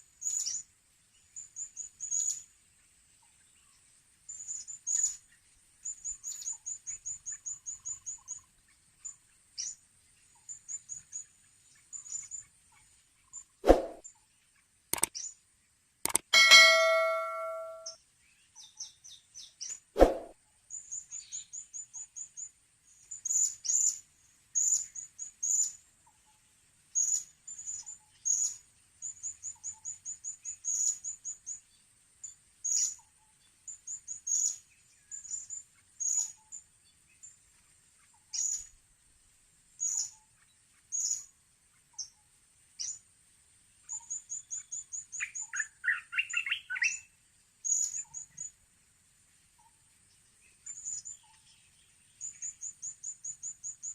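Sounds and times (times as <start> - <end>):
faint high whine: 16.2 - 18.0.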